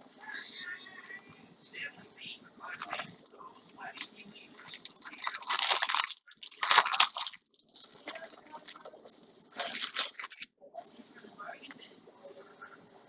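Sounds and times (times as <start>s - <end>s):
packaging crinkling: 2.7s - 3.3s, 4.0s - 10.5s.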